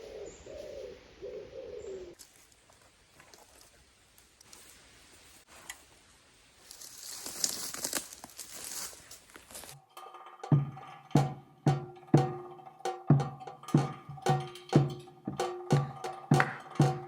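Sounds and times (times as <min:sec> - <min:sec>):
crinkling rustle: 0:02.2 - 0:05.8, 0:06.6 - 0:09.8
background music with percussive beat: 0:09.8 - 0:17.0.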